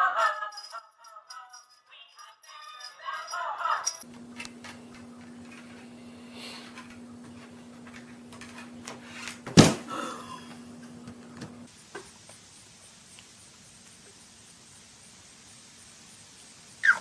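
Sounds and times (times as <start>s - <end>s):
steady low hum: 3.9s - 16.8s.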